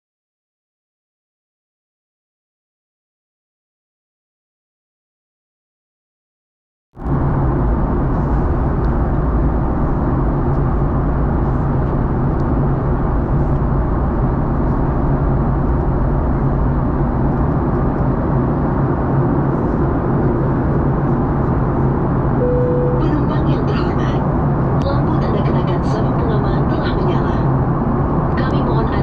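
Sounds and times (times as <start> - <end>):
airflow over fuselage: 7.0 - 29.0
jet engine cabin drone: 7.0 - 29.0
steady low hum: 7.0 - 29.0.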